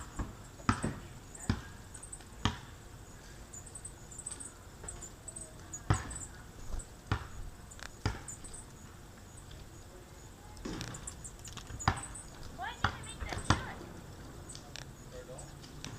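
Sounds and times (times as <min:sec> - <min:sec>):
high bird chirps: 0:01.2 - 0:02.3, 0:03.1 - 0:13.8
birds knocking: 0:10.6 - 0:15.9.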